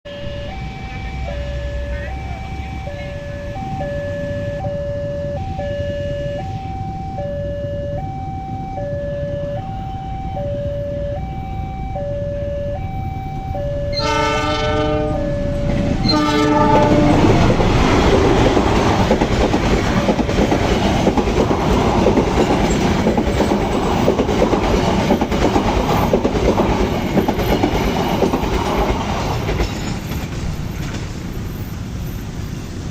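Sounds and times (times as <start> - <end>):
train rumbling and wheel clatter: 0.1 - 11.9, 12.8 - 32.9
level crossing two-tone alarm: 0.1 - 17.3
train horn: 13.9 - 17.6.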